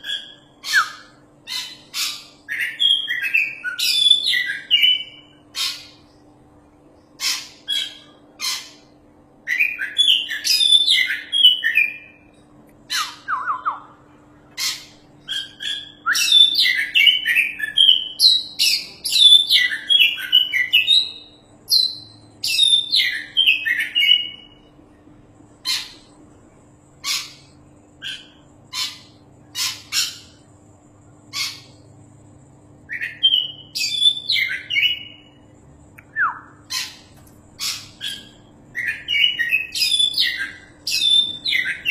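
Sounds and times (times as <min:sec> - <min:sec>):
bird whistled song phrases: 0:00.0 - 0:06.0, 0:09.5 - 0:12.2, 0:12.9 - 0:14.0, 0:14.6 - 0:24.7, 0:32.9 - 0:35.4, 0:36.0 - 0:37.0, 0:37.6 - 0:41.9.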